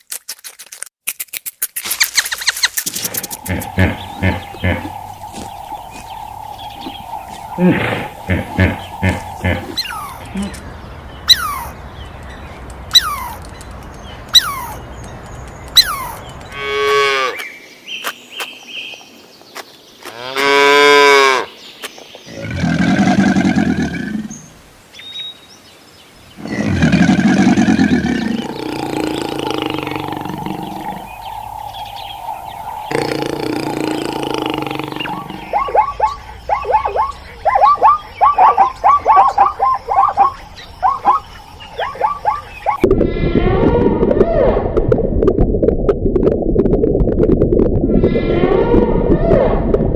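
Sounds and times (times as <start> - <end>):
quick repeated animal calls: 32.7 - 40.3.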